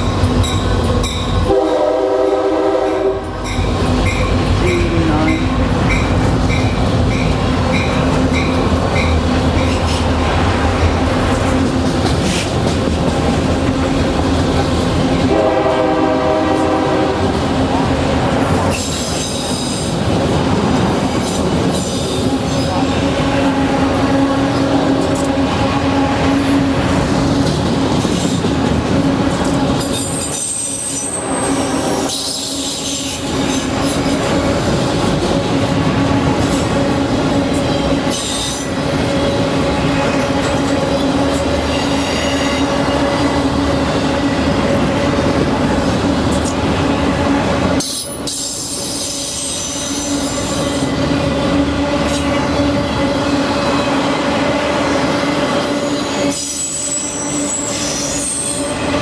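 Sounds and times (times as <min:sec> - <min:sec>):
train rumble: 0:00.0 - 0:59.0
train wheels squealing on rail: 0:03.4 - 0:10.2, 0:18.3 - 0:23.0, 0:26.2 - 0:28.6, 0:29.3 - 0:51.1, 0:51.8 - 0:53.9, 0:54.8 - 0:59.0.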